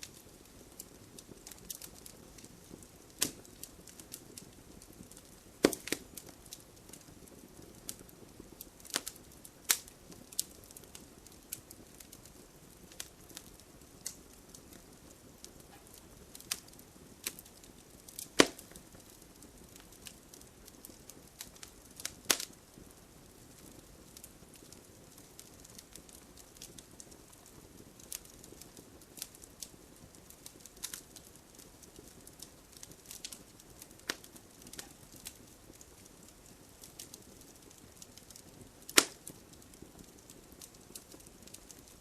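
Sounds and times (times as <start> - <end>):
faint low hiss: 0.0 - 42.0
wood fire crackling: 0.0 - 42.0.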